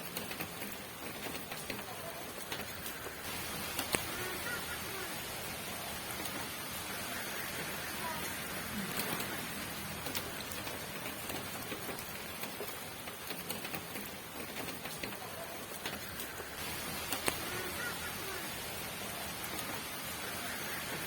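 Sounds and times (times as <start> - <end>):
raindrop taps: 0.0 - 21.0
steady rain patter: 0.0 - 21.0.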